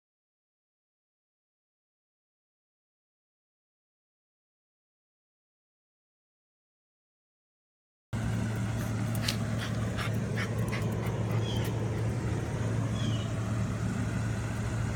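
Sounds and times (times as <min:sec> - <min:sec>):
steady low hum: 0:08.2 - 0:14.9
puppies stirring: 0:08.4 - 0:13.5.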